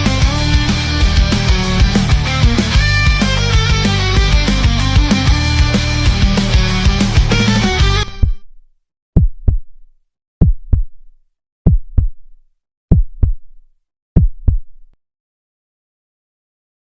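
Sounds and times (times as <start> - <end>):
heartbeat double thumps: 0.0 - 8.4, 9.2 - 9.7, 10.4 - 11.0, 11.6 - 12.3, 12.9 - 13.5, 14.2 - 14.7.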